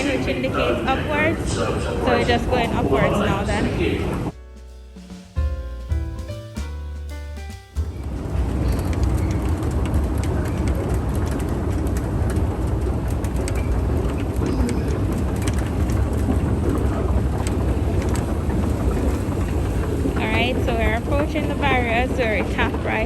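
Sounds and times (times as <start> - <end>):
crowd noise: 0.0 - 4.3, 13.7 - 23.0
low rumble: 0.0 - 4.4, 7.8 - 23.0.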